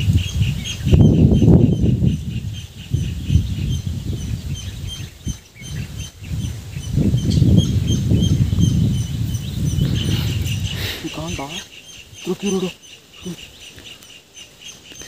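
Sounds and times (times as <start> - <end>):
bird chirping rapidly: 0.0 - 15.0
microphone handling and rustling: 3.1 - 11.6.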